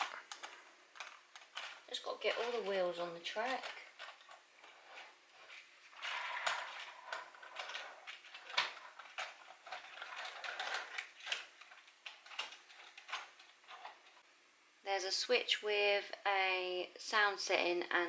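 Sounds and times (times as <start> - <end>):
plastic toy train clicks: 0.0 - 5.5, 6.1 - 14.0
plastic rattling: 0.0 - 14.2.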